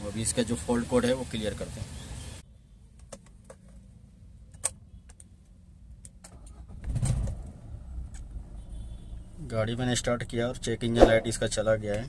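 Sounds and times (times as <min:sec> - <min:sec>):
car engine starting and idling: 0:06.2 - 0:08.6.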